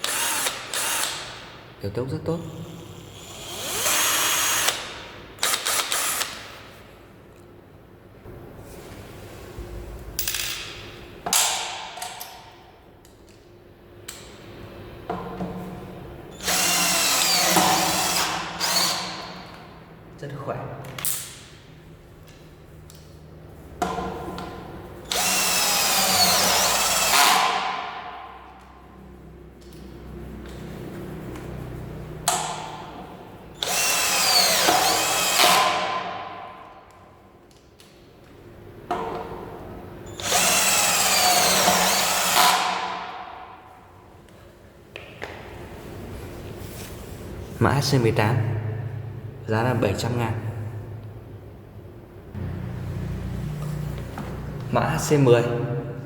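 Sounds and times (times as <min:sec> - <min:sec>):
cordless drill running: 0:00.0 - 0:01.4, 0:02.7 - 0:06.4, 0:16.4 - 0:19.2, 0:25.1 - 0:27.8, 0:33.6 - 0:35.7, 0:40.1 - 0:42.8.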